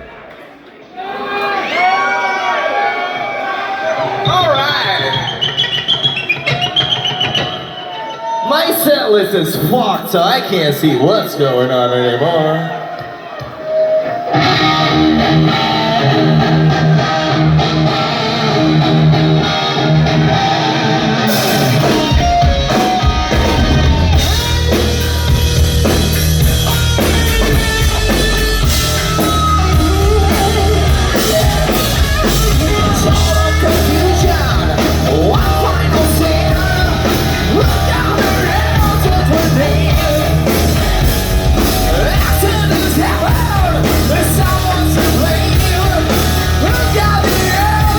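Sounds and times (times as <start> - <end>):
drums: 2.9 - 11.6, 12.8 - 47.9
electric guitar: 13.0 - 47.9
bass guitar: 14.3 - 47.9.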